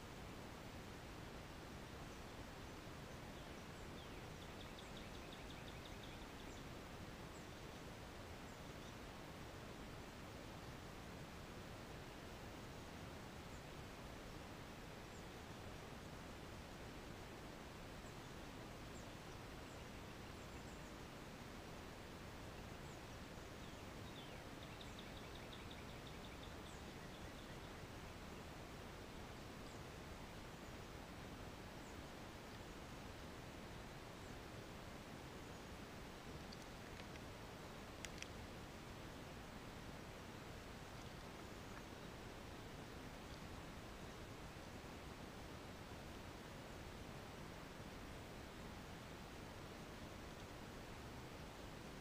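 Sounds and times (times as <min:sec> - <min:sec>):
faint outdoor background hiss: 0:00.0 - 0:52.0.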